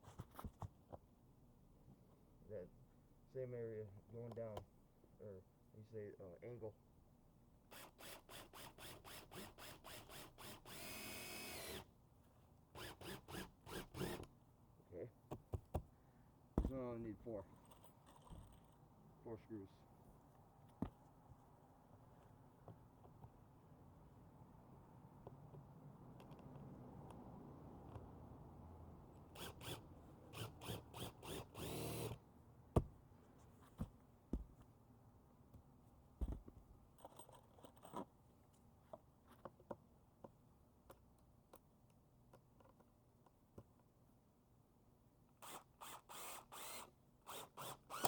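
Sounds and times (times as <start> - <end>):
cordless drill driving a screw: 7.7 - 11.9, 12.8 - 14.3, 29.3 - 32.2, 45.4 - 48.0.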